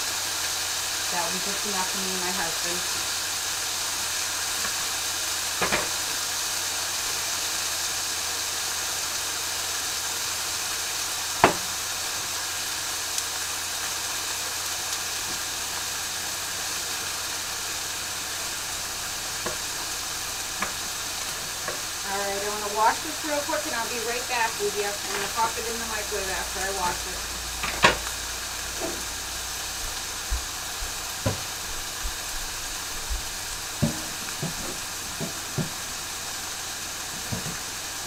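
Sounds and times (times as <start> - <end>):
chicken sizzling in a frying pan: 0.0 - 38.0
sharp knocks: 11.4 - 11.7.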